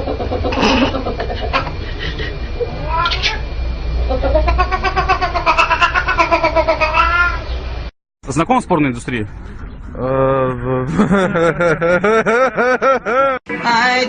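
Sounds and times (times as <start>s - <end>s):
cat yowling: 2.7s - 3.5s, 4.1s - 7.5s.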